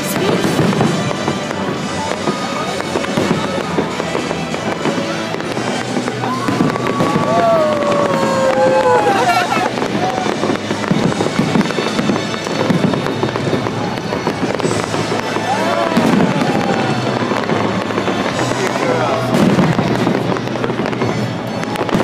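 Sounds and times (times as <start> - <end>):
fireworks crackling and banging: 0.0 - 22.0.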